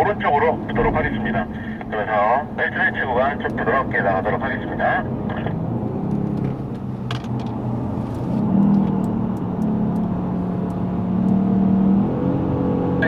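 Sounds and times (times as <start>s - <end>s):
road noise: 0.0s - 13.0s
car engine accelerating: 3.3s - 13.0s.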